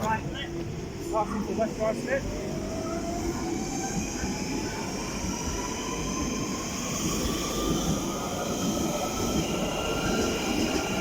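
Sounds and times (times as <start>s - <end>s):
rumble of train wheels: 0.0s - 11.0s.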